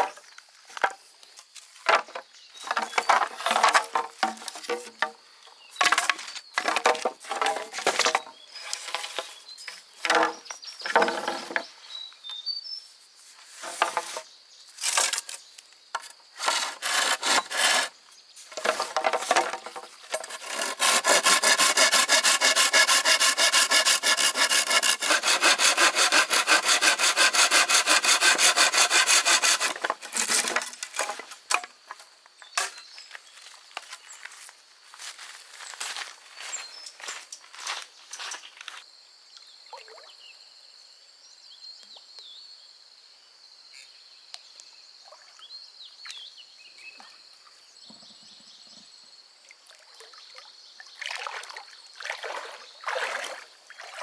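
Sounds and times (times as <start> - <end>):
wood being sawn by hand: 16.4 - 18.0, 18.6 - 31.1.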